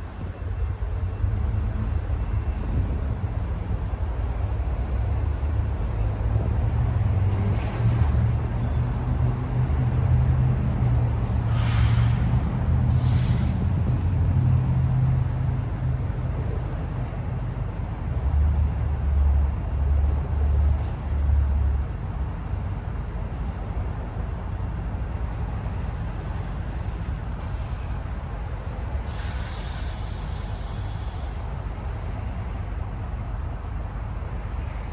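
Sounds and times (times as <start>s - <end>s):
diesel engine rumbling: 0.0s - 34.9s
air hisses: 29.1s - 31.5s.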